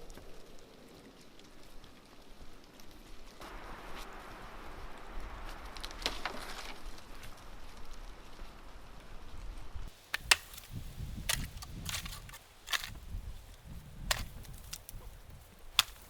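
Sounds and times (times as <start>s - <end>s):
rustling and shuffling: 9.9s - 16.0s
stick knocking tree branches: 9.9s - 16.0s.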